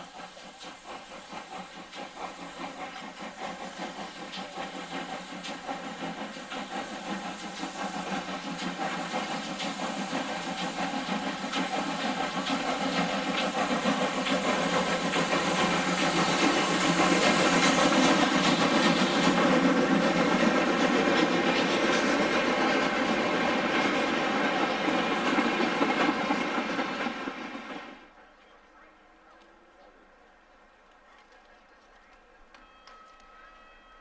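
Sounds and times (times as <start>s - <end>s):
steam locomotive exhaust beats: 0.0s - 34.0s.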